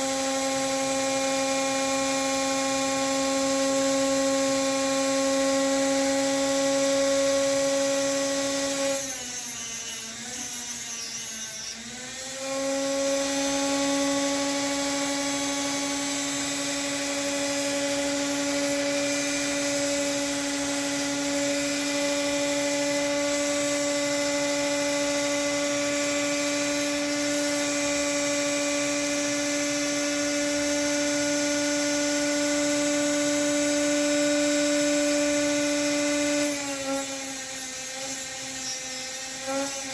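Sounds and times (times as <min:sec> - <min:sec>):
rotary tool whine grinding metal: 0:07.3 - 0:12.7, 0:35.8 - 0:39.9.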